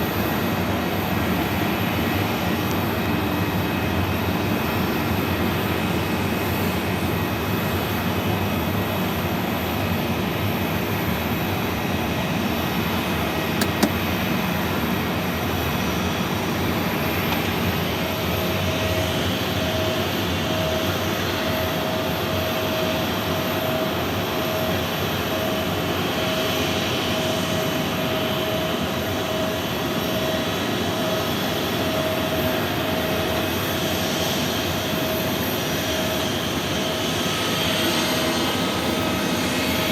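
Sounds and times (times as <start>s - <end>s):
jet engines running: 0.0s - 39.9s
sharp click: 13.6s - 14.0s.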